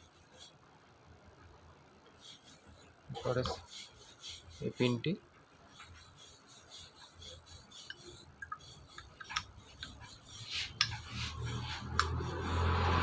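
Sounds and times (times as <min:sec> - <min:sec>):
vehicle passing: 0:11.1 - 0:13.0.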